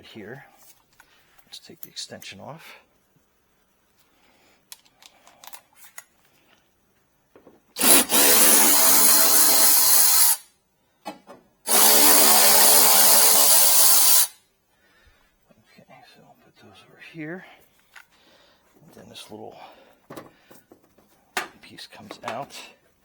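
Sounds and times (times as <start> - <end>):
tool handling clicks: 4.7 - 6.6
power drill running: 7.8 - 10.4, 11.7 - 14.3.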